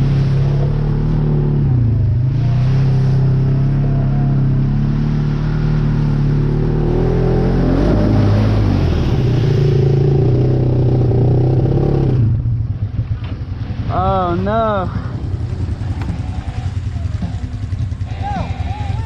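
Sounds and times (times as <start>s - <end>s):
atv engine revving hard: 0.0s - 12.4s.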